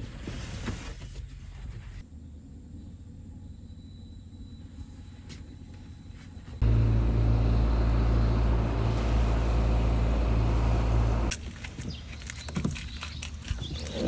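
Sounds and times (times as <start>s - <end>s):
car engine and road noise: 6.6s - 12.0s.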